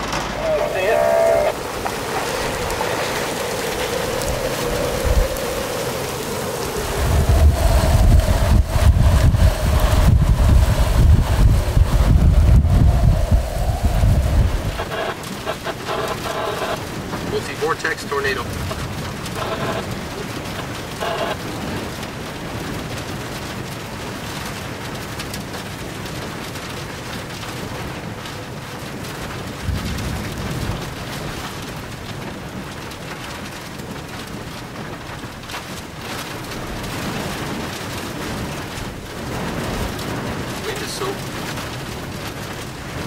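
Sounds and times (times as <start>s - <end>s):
low rumble: 0.0s - 17.4s
rain and wind hissing: 0.0s - 43.0s.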